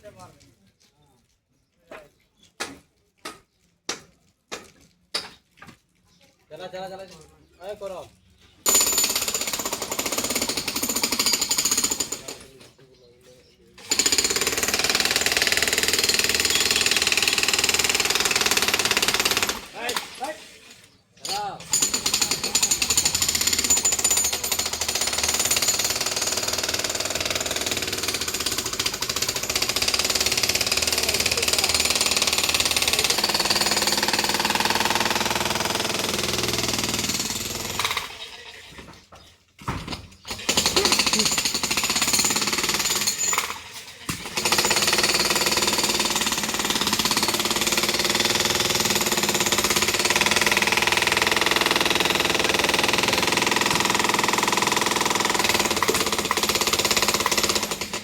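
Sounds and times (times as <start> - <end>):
jackhammer hammering masonry: 8.6 - 12.6, 13.8 - 20.2, 21.2 - 38.2, 39.7 - 58.0.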